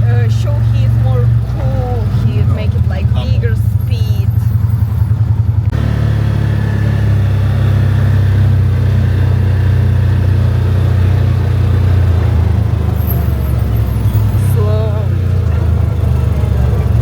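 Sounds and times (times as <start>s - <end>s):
car wind and engine rumble: 0.0s - 17.0s.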